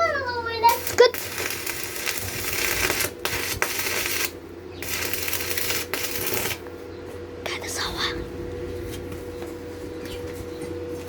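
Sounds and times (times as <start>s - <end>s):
arc welding crackling and hissing: 0.0s - 6.8s
electrical hum: 0.0s - 11.0s.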